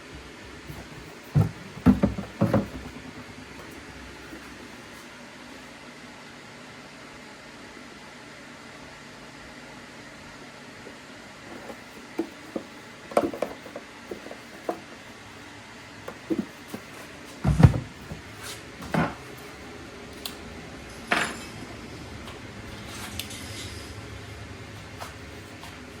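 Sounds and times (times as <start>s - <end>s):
parts clicking and clattering: 11.5s - 14.8s
heavy thump: 17.4s - 18.2s.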